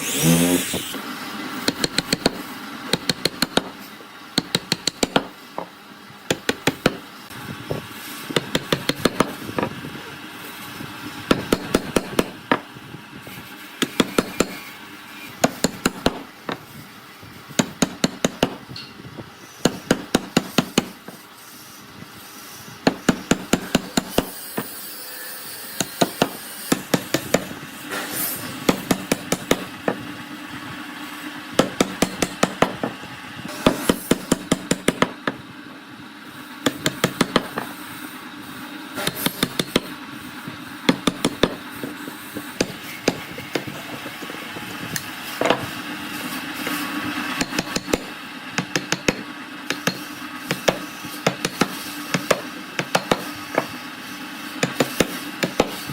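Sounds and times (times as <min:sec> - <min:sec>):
hammer striking: 0:01.6 - 0:03.8, 0:04.4 - 0:05.7, 0:06.3 - 0:07.0, 0:08.4 - 0:09.7, 0:13.8 - 0:14.7, 0:15.4 - 0:16.6, 0:17.6 - 0:19.0, 0:19.6 - 0:21.2, 0:22.8 - 0:24.8, 0:25.8 - 0:30.1, 0:31.6 - 0:35.4, 0:36.6 - 0:37.7, 0:39.0 - 0:40.0, 0:40.9 - 0:42.0, 0:42.6 - 0:43.7, 0:47.4 - 0:53.7, 0:54.6 - 0:55.9.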